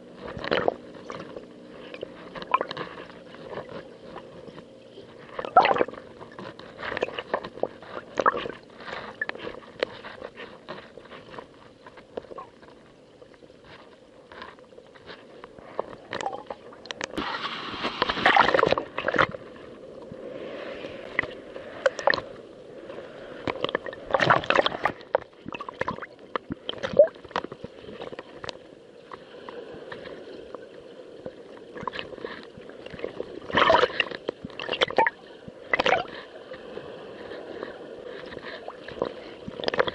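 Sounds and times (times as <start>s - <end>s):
waves slapping against a hull: 0.0s - 39.9s
water surging: 5.2s - 10.2s, 31.2s - 36.3s.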